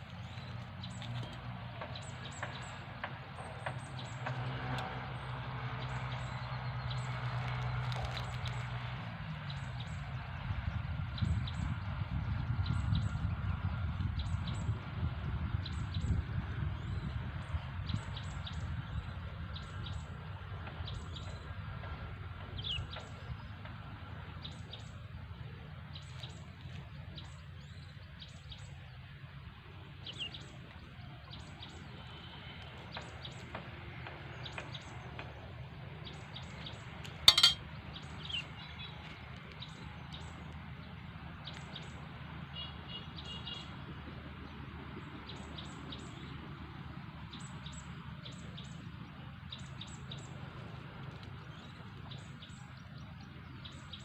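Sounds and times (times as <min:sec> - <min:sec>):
small birds chirping: 0:00.0 - 0:08.9, 0:29.9 - 0:43.8, 0:47.2 - 0:54.0.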